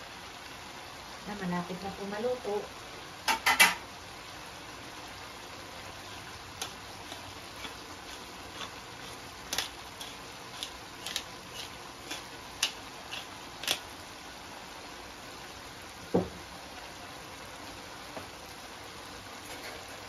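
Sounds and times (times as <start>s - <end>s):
vegetables sizzling in a wok: 0.0s - 20.0s
sharp pops and crackles: 6.1s - 14.0s.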